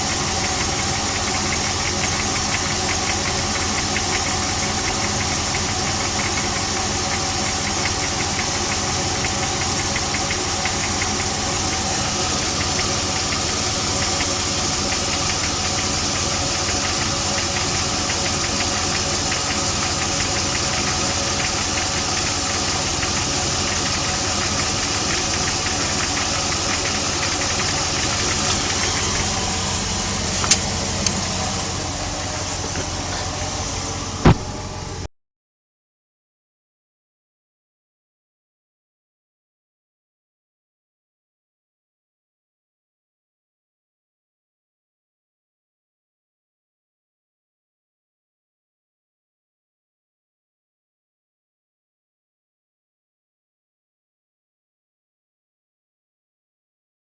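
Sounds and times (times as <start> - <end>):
rapid engine knocking: 0.0 - 35.0
car engine running: 0.0 - 35.1.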